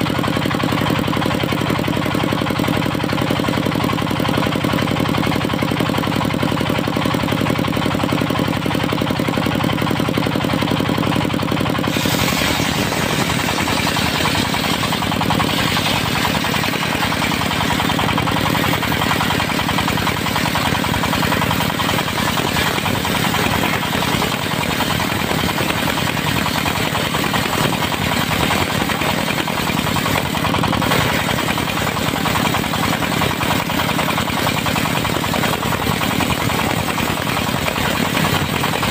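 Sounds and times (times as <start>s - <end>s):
diesel engine knocking: 0.0s - 38.9s
saw blade cutting wood hiss: 11.9s - 19.4s.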